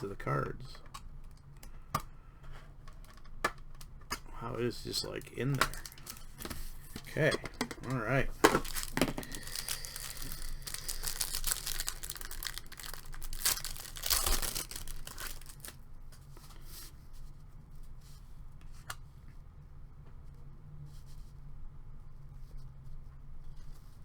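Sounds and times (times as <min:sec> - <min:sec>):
wrapper tearing and crinkling: 0:04.6 - 0:07.3, 0:07.9 - 0:15.8.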